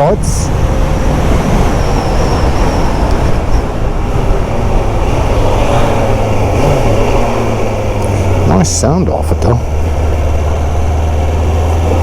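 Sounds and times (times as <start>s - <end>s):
motorcycle engine running steadily: 4.1s - 12.0s.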